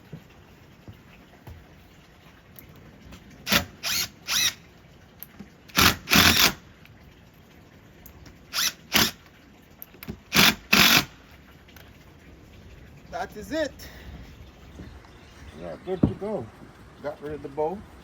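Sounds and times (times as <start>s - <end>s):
power drill driving screws: 3.5s - 4.6s, 5.7s - 6.6s, 8.5s - 9.2s, 10.3s - 11.1s.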